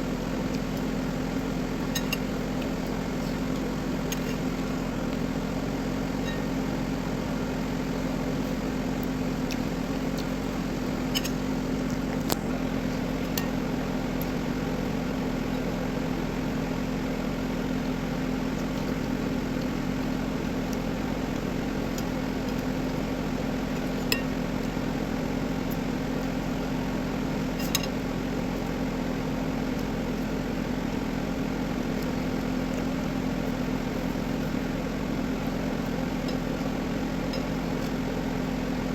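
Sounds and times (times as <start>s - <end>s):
motor hum with low tones: 0.0s - 38.9s.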